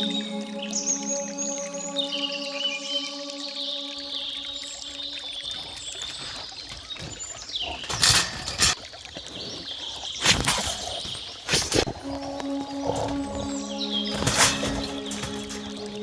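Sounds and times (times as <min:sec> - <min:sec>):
birds calling: 0:00.0 - 0:16.0
wild boar thrashing: 0:06.1 - 0:09.4, 0:10.2 - 0:11.9, 0:12.8 - 0:16.0.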